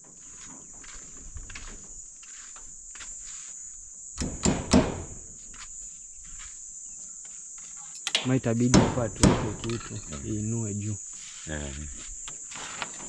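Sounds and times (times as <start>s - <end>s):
crickets trilling: 0.0s - 13.0s
loud knocks: 4.2s - 5.2s, 8.7s - 9.8s.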